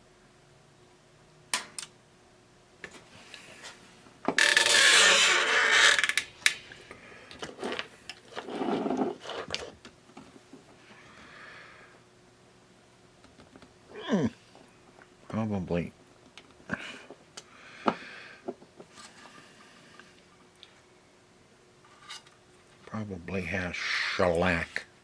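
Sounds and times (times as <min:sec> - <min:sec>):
sharp clicks of small parts: 0:01.5 - 0:01.9.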